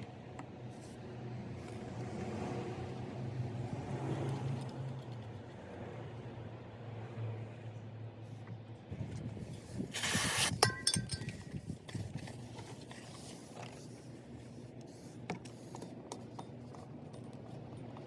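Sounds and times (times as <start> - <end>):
short hiss: 9.9 - 10.6
sharp metallic clinks: 10.4 - 11.6.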